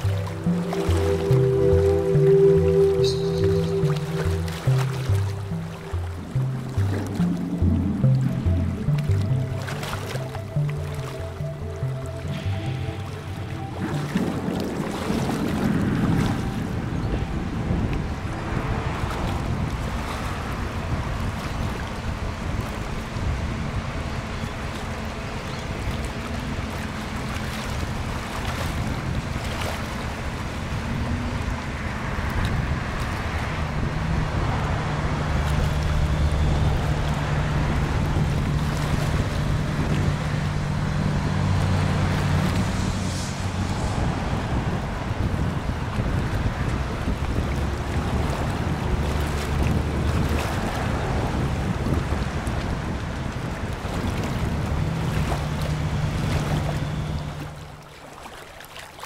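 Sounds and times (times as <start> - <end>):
wind on microphone: 0.0 - 57.9
outboard motor hum: 0.0 - 59.0.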